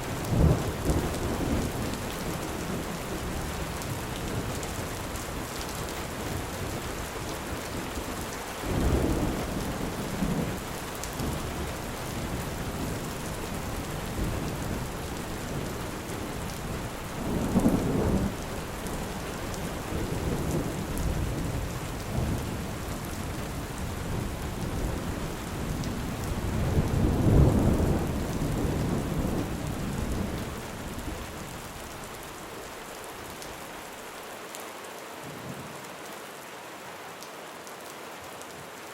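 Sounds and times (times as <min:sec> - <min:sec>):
steady rain: 0:00.0 - 0:38.9
thunder rumbling: 0:11.2 - 0:31.6.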